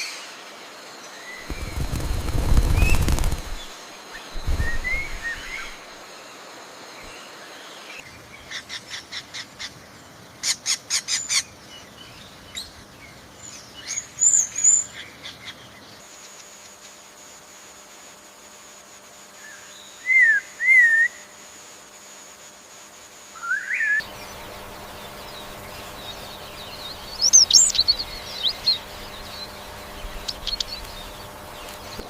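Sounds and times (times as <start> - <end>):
bird chirps: 1.3 - 5.9, 23.4 - 32.0
rapid clicking notes: 1.4 - 3.7
bird wings flapping: 1.4 - 6.0, 24.0 - 32.0.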